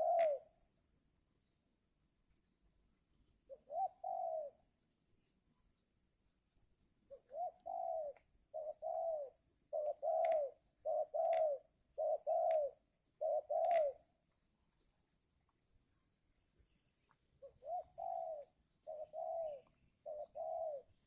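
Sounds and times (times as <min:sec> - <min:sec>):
dove cooing: 0:00.0 - 0:00.5, 0:03.5 - 0:04.6, 0:07.1 - 0:14.0, 0:17.4 - 0:21.0.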